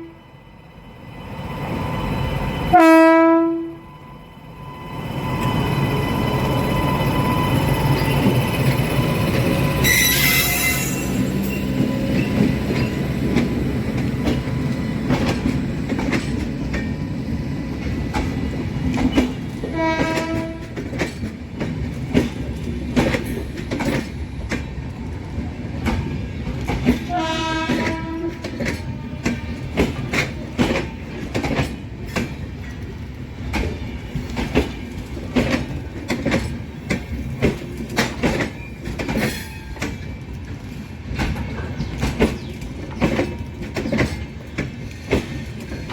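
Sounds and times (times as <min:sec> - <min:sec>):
train horn: 0:00.0 - 0:00.2, 0:02.7 - 0:03.9, 0:09.8 - 0:11.3, 0:19.6 - 0:20.8, 0:27.0 - 0:29.9
train wheels clicking over rail joints: 0:07.6 - 0:45.9.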